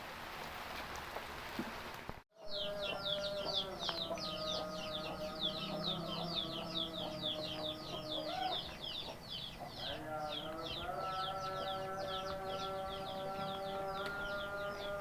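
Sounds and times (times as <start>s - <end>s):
rain hiss: 0.0s - 2.2s
chicks peeping: 2.4s - 15.0s.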